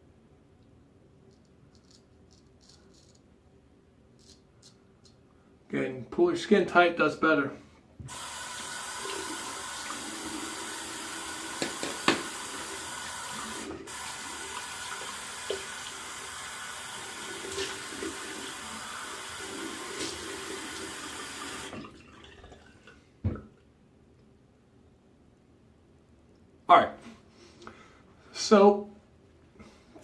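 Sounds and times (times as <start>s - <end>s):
water tap running into sink: 8.1s - 22.8s.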